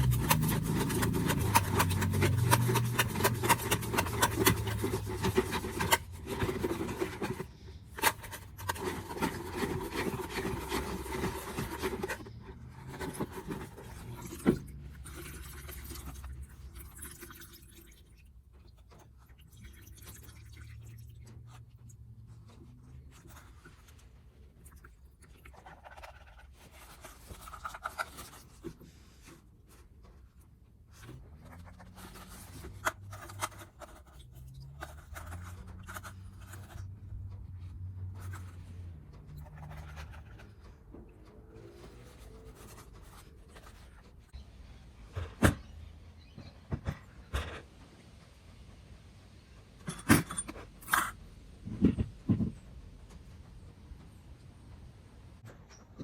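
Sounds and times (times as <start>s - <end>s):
scraping and rubbing strokes: 0.0s - 16.3s, 25.2s - 44.4s.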